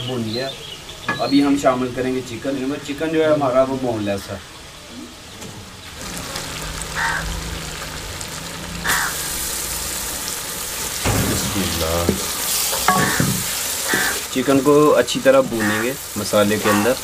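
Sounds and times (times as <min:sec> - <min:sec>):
chicken sizzling in hot oil: 0:05.9 - 0:17.0
wooden spatula stirring in pan: 0:11.1 - 0:17.0.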